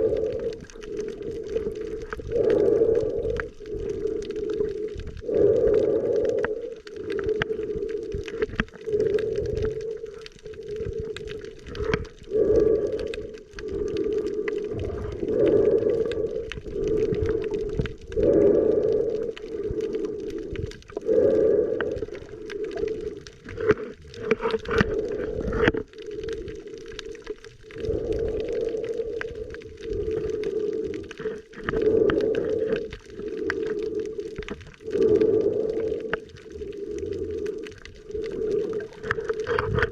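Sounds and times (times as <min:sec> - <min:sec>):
underwater hum and gurgling: 0:00.0 - 0:39.9.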